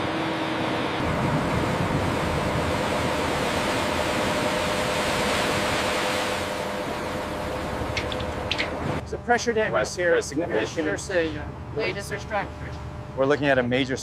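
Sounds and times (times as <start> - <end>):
faint hum: 0.8 - 14.0
steady rushing noise: 1.0 - 9.0.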